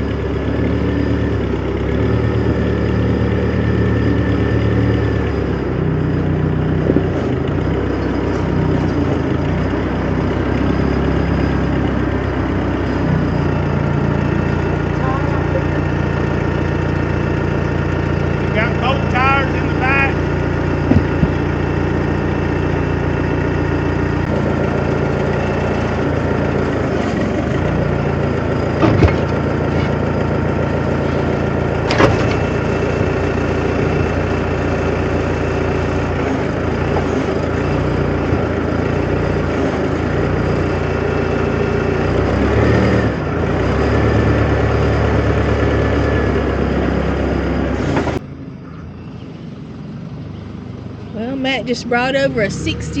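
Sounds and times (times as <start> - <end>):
vehicle engine running: 0.0 - 53.0
sharp knocks: 20.8 - 21.4.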